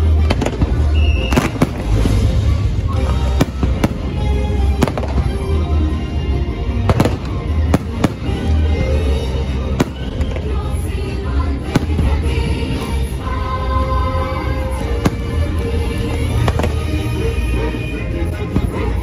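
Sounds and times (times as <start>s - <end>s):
music soundtrack: 0.0s - 19.0s
fireworks sharp cracks: 0.2s - 2.4s, 6.9s - 8.6s, 11.7s - 13.1s.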